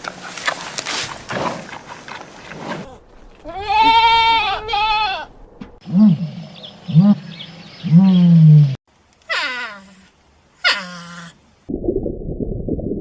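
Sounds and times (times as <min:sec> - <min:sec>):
farm animal bleating: 0:02.8 - 0:05.3.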